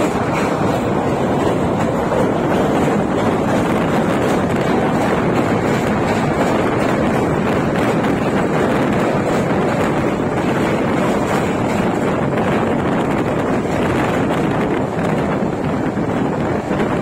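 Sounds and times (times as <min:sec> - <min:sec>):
train running at high speed: 0:00.0 - 0:17.0
wind buffeting the microphone: 0:00.0 - 0:17.0.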